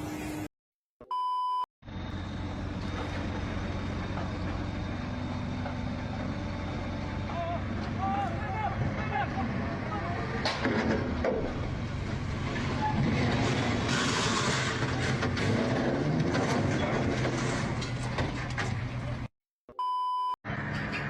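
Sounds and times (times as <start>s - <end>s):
electronic beep: 1.0s - 1.7s, 19.7s - 20.4s
vehicle engine running: 1.8s - 15.9s
rumbling traffic noise: 1.8s - 19.3s, 20.5s - 21.0s.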